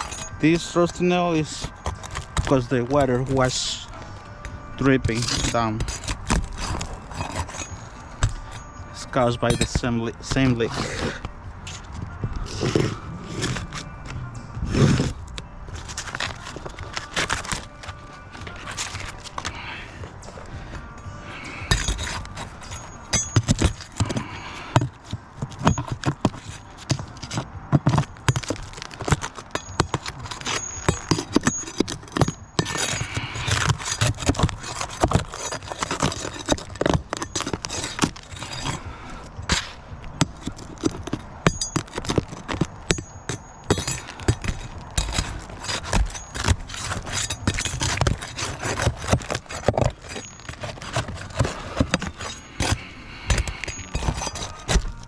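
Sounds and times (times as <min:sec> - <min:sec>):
roofing tool scraping shingles: 0:04.9 - 0:13.9, 0:21.3 - 0:39.8, 0:43.7 - 0:55.0.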